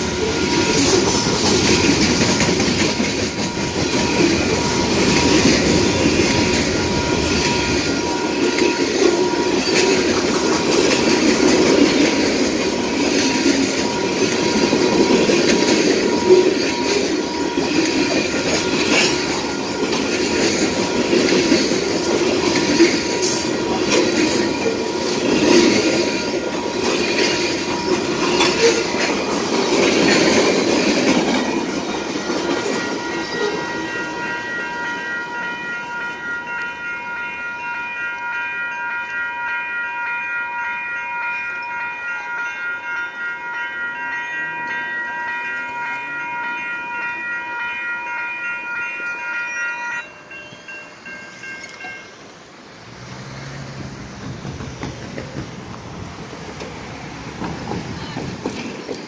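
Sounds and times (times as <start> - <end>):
train wheels rattling over rails: 0.0 - 34.8, 50.3 - 59.0
level-crossing bell ringing: 0.0 - 53.7.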